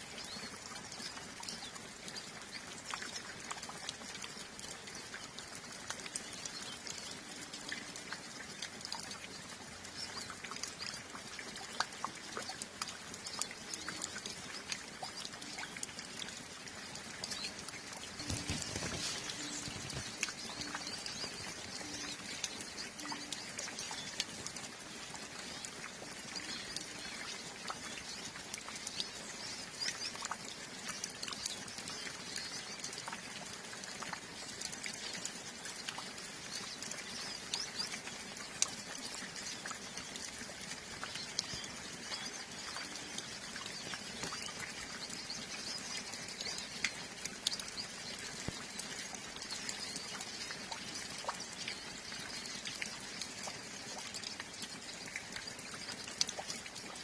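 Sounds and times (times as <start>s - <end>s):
steady rain: 0.0s - 57.0s
water dripping: 0.0s - 57.0s
birds twittering chirps: 12.3s - 33.5s, 36.2s - 57.0s.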